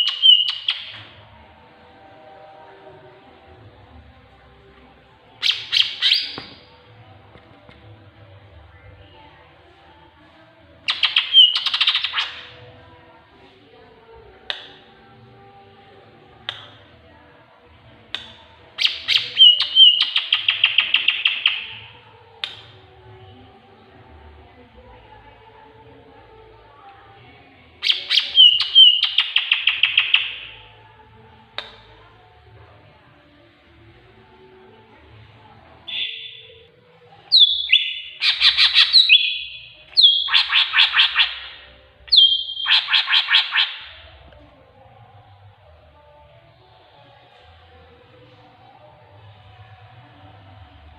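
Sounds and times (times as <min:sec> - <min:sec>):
sharp bird calls: 0:00.0 - 0:01.0, 0:10.9 - 0:12.5, 0:18.8 - 0:21.8, 0:27.8 - 0:30.5, 0:37.3 - 0:44.0
bird warbling: 0:37.4 - 0:41.5, 0:42.1 - 0:44.0.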